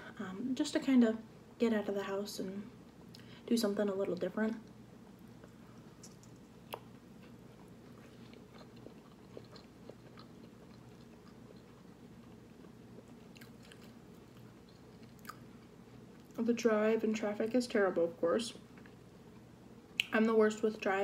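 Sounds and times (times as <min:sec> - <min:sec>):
faint chewing with crunches: 0:04.1 - 0:16.4, 0:18.6 - 0:20.7.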